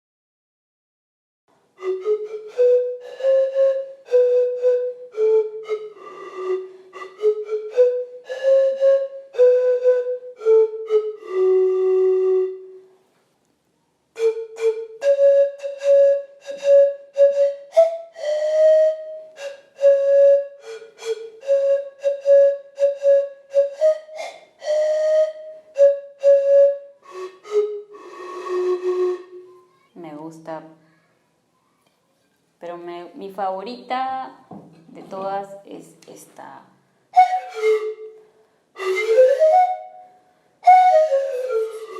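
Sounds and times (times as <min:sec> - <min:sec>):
breathy pan flute notes: 0:01.7 - 0:13.1, 0:14.2 - 0:30.0, 0:36.9 - 0:41.9.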